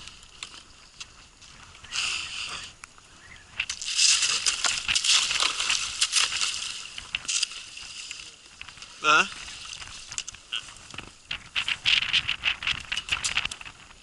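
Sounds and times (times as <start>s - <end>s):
ice crunching against hull: 3.6s - 14.0s.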